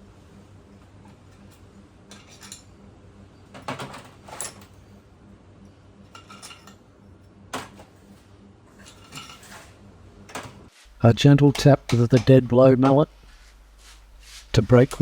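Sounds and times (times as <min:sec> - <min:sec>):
metal parts and tools clinking: 0:01.3 - 0:02.7, 0:03.7 - 0:04.8, 0:06.1 - 0:06.8.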